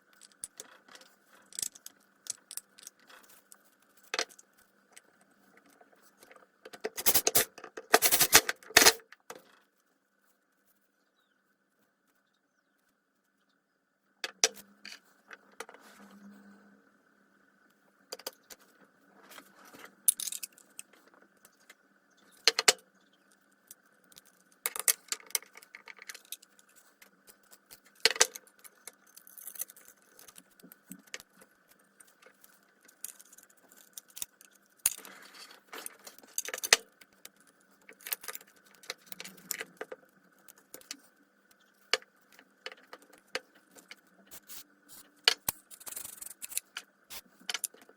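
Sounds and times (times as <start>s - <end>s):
metal tools clinking and rattling: 6.9s - 9.0s.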